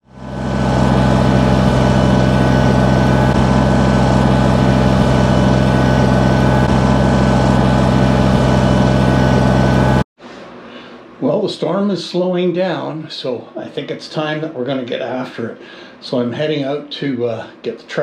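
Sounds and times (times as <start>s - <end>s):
heavy engine running: 0.0s - 10.1s.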